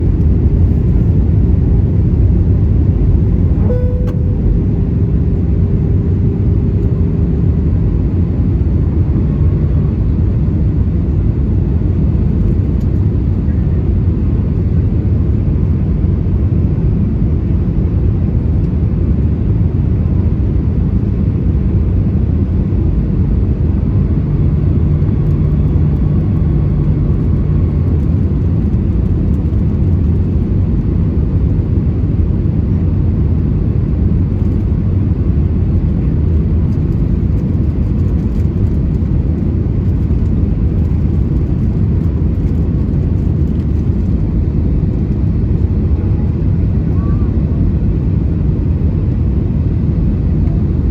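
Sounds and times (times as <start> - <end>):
aircraft engines rumbling in cabin: 0.0 - 50.9
low steady hum: 0.0 - 50.9.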